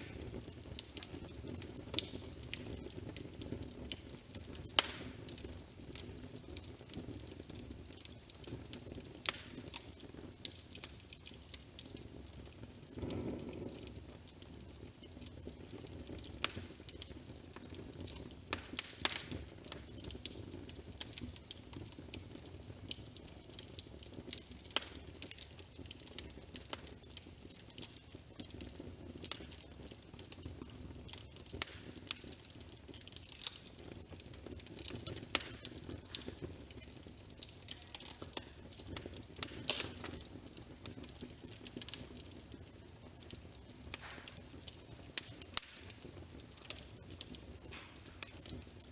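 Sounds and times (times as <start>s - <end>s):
wood fire crackling: 0.0s - 48.9s.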